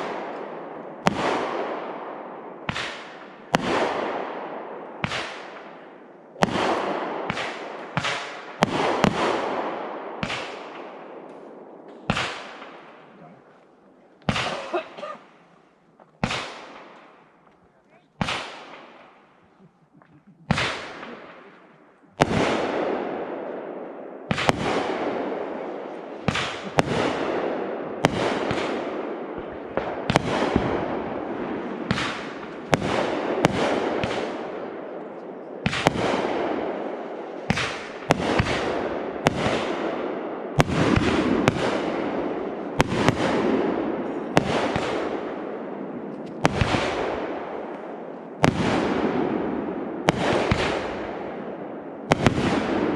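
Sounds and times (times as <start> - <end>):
fireworks bursting with echo: 0.0 - 52.9.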